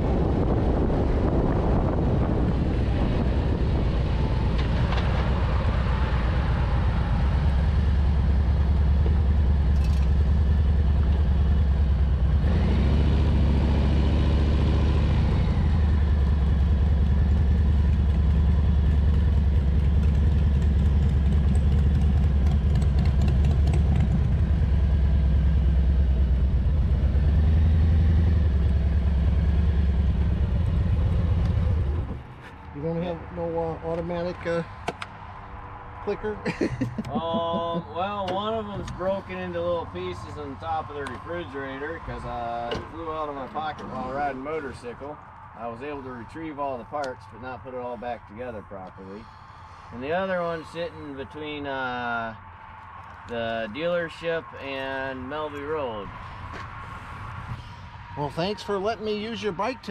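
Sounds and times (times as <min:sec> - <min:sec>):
motorcycle engine running: 0:07.0 - 0:32.1.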